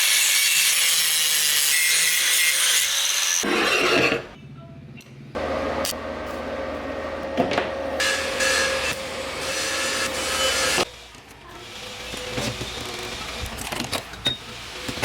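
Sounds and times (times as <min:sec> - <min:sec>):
angle grinder grinding: 0:07.8 - 0:10.9.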